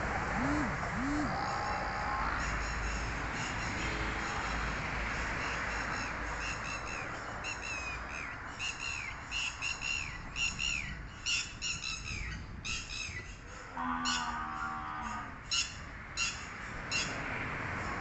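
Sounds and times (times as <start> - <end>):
steady low pitched tone: 0.0 - 2.4
bird calling: 0.3 - 3.8.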